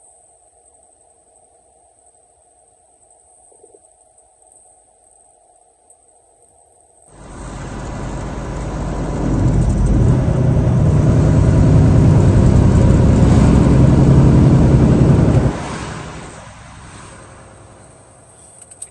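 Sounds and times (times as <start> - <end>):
vehicle engine accelerating: 7.1 - 18.2.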